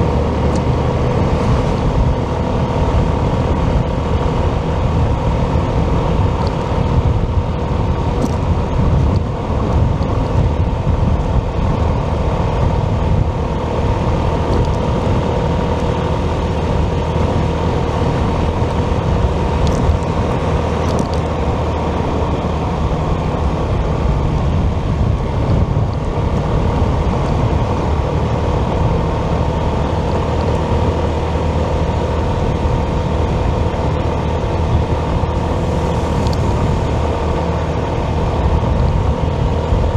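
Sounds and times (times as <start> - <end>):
constant whine: 0.0 - 39.9
motorcycle engine cruising: 0.0 - 39.9
road noise: 0.0 - 39.9.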